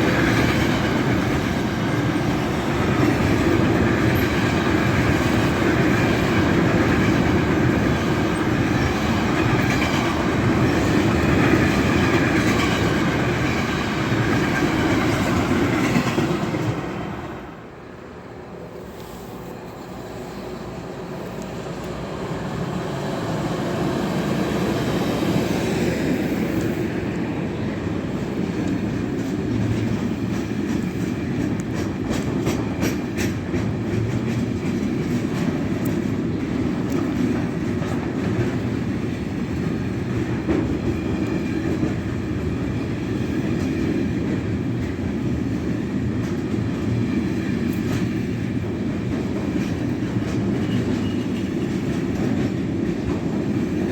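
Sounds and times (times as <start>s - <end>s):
train running past: 0.0s - 53.9s
wheels clicking over rail joints: 28.1s - 53.9s.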